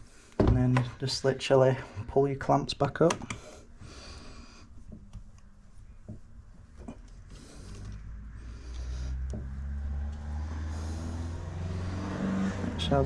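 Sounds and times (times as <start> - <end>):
vehicle engine hum: 6.1 - 13.0.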